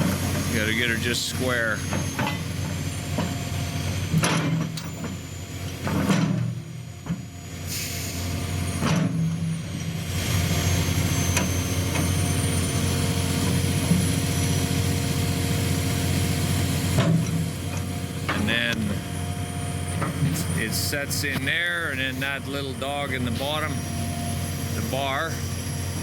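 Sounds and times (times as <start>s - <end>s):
excavator diesel engine: 0.0s - 26.0s
metal clanks: 4.1s - 5.2s.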